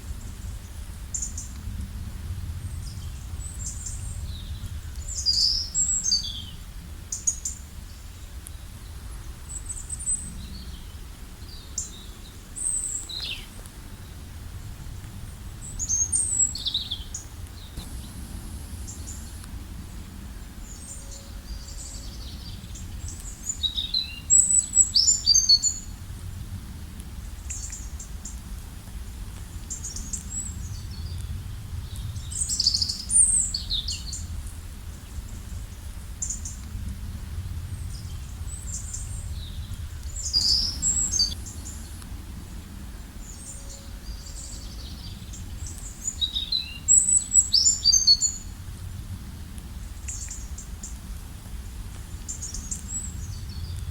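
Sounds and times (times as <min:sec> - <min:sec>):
low background rumble: 0:00.0 - 0:53.9
songbirds singing and chirping: 0:02.6 - 0:26.0, 0:37.6 - 0:48.5, 0:52.0 - 0:53.9.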